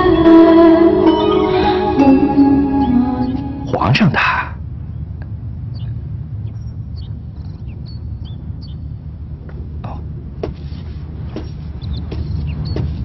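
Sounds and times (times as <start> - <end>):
steady low rumble: 1.7 - 10.4
small birds chirping: 4.9 - 9.1, 11.2 - 13.0.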